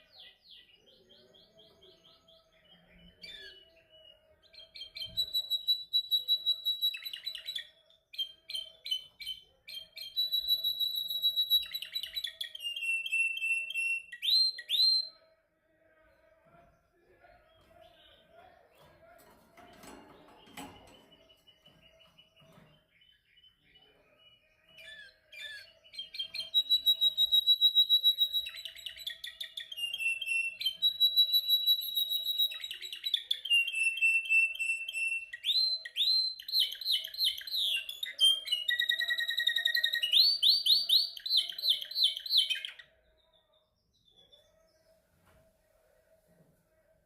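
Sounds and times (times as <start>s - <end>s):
canary singing trills: 17.3s - 44.8s.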